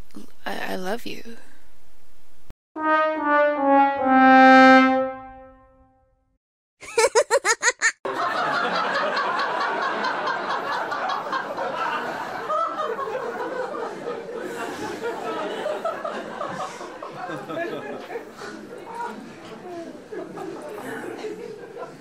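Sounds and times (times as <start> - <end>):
sad trombone sound effect: 2.8 - 6.0
crowd laughing and chattering: 7.5 - 22.0.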